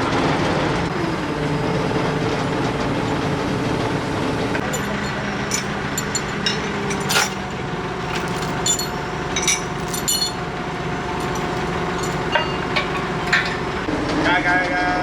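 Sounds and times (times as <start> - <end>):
metallic clinks and taps: 4.6 - 10.5, 11.1 - 13.9.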